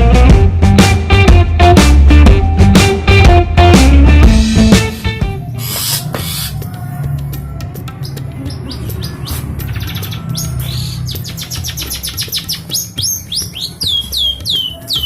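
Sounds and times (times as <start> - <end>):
shrike chirping: 4.8 - 6.9
downward-sweeping bird calls: 4.8 - 7.1, 7.8 - 15.0.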